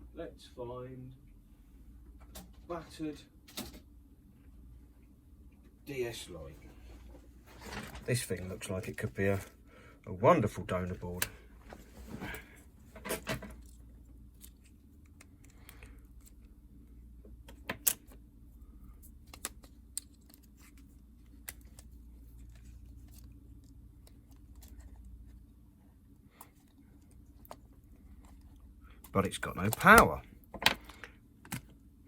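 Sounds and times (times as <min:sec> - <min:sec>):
steady low hum: 0:00.0 - 0:32.0
plastic parts clicking and clattering: 0:26.4 - 0:31.7.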